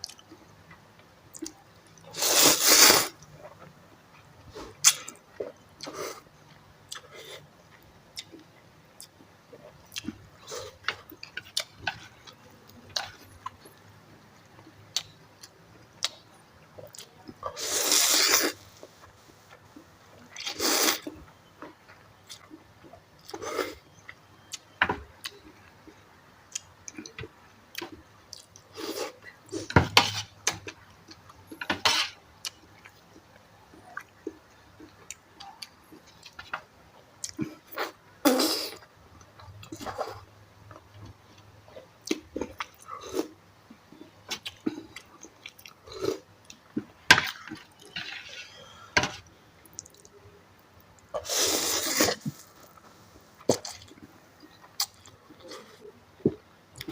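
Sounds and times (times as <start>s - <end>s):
noodle slurping: 2.1s - 3.1s, 17.5s - 18.6s, 51.2s - 52.5s
person chewing: 6.9s - 13.8s, 21.9s - 25.7s, 37.2s - 48.9s, 49.6s - 50.2s, 50.9s - 56.9s.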